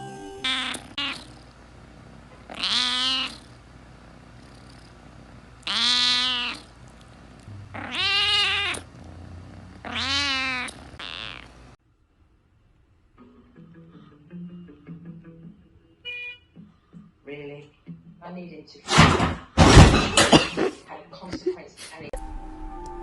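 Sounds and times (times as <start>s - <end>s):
cat meowing: 0.4s - 1.4s, 2.5s - 3.4s, 5.6s - 6.7s, 7.7s - 8.9s, 9.8s - 11.5s.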